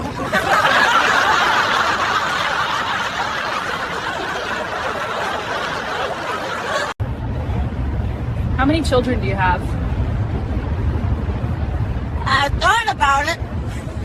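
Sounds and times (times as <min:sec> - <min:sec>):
group of people laughing: 0:00.0 - 0:07.0.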